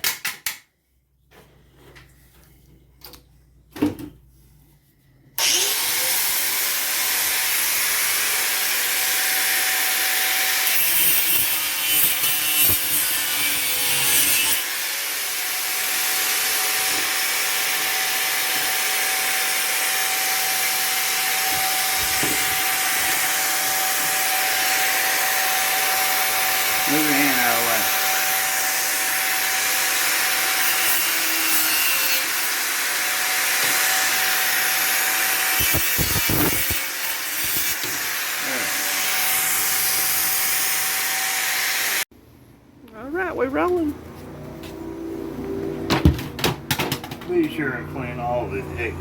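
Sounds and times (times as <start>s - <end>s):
power saw cutting plastic: 5.4s - 42.0s.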